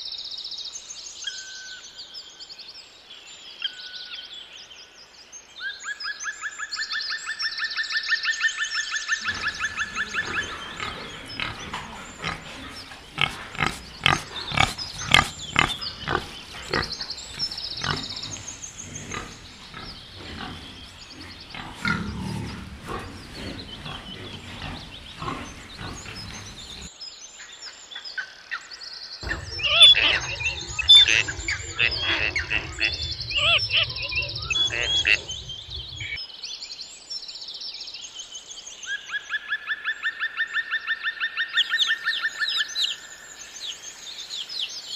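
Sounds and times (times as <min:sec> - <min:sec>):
high chirping bird calls: 0:09.2 - 0:26.9, 0:29.2 - 0:36.2
pig grunting: 0:09.2 - 0:26.9, 0:29.2 - 0:36.2
steady background chirring: 0:09.2 - 0:27.9, 0:29.0 - 0:36.2.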